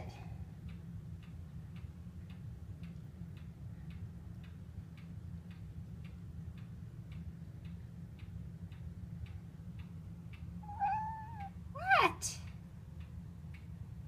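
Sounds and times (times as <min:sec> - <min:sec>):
low steady hum: 0:00.0 - 0:14.0
clock ticking: 0:00.5 - 0:11.6, 0:12.4 - 0:13.8
cat meowing: 0:10.7 - 0:11.5.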